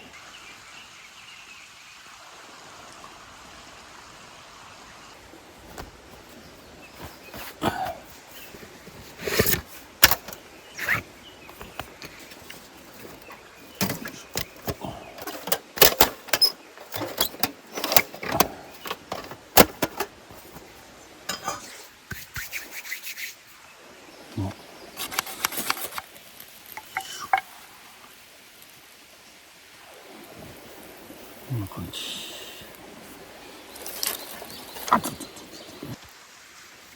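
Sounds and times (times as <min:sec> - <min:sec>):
camp gear clicking and clattering: 0:05.6 - 0:21.9, 0:25.0 - 0:26.1.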